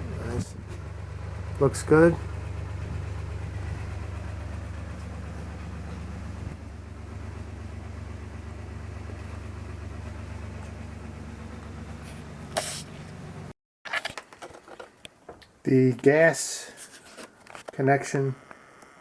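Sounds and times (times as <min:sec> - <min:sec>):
engine idling: 0:00.0 - 0:13.5.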